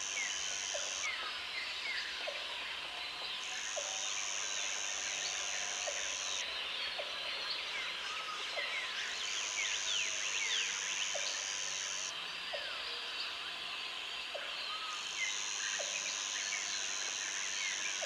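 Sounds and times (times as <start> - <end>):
high insect buzz: 0.0 - 1.2, 9.4 - 12.1
insects hissing: 0.0 - 1.4, 3.5 - 6.4, 9.1 - 12.1.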